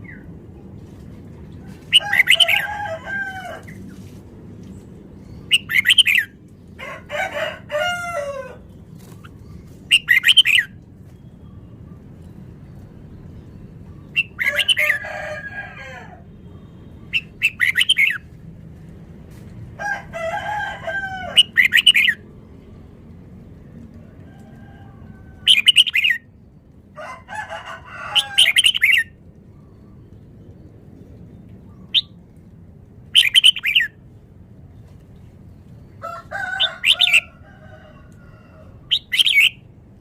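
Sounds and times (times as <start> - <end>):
bulbul singing rapid phrases: 5.5 - 6.4, 9.0 - 10.8, 14.1 - 15.0, 16.9 - 18.3.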